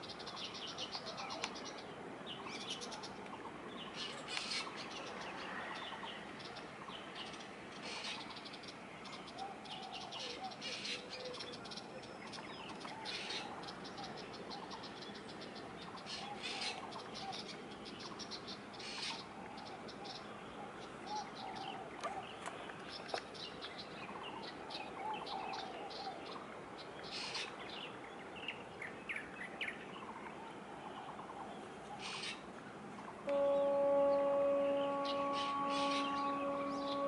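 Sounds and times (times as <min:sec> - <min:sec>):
loud bird call: 0:33.2 - 0:37.0.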